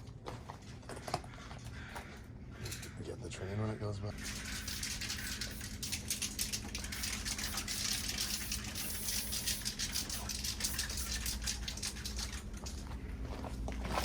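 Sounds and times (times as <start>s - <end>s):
spray paint can hissing: 4.2s - 12.4s.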